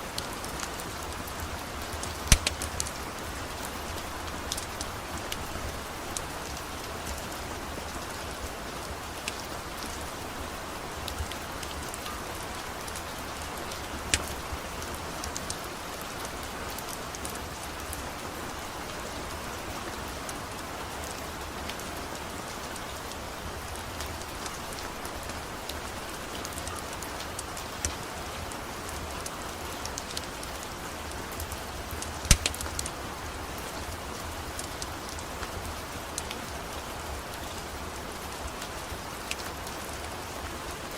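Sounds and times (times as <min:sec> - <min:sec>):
steady rain falling: 0:00.0 - 0:40.9
sharp clicks and pops: 0:02.2 - 0:02.9, 0:32.2 - 0:32.9.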